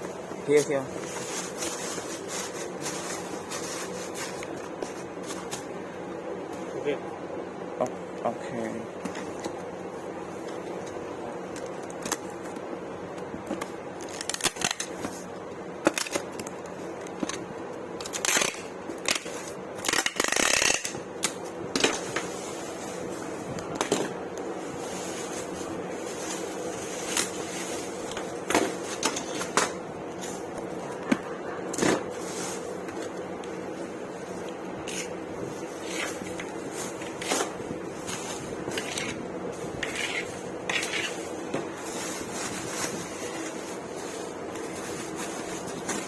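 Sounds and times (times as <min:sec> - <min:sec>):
packaging rustling: 0:00.9 - 0:05.7, 0:32.0 - 0:46.0.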